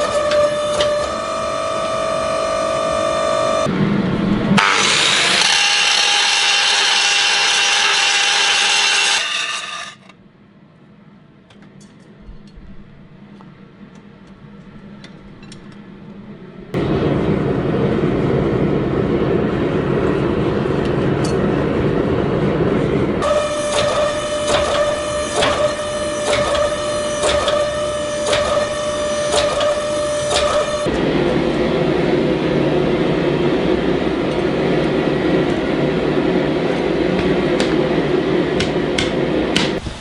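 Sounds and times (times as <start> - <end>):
power tool grinding steel: 4.6 - 10.0.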